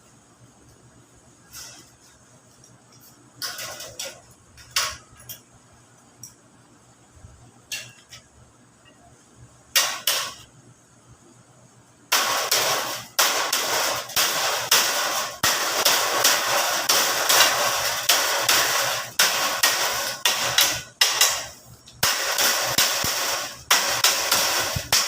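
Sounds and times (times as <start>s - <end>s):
sheet metal knocks and clanks: 3.4s - 5.4s.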